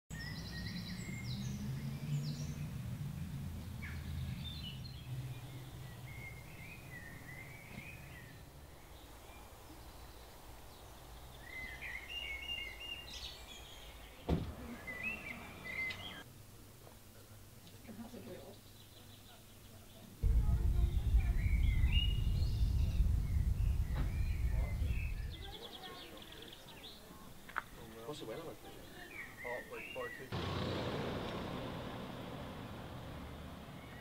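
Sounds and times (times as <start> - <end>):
songbirds chirping and warbling: 0.1 - 16.3, 17.8 - 34.0
sharp knock: 20.2 - 25.6
low rumble: 20.2 - 26.6.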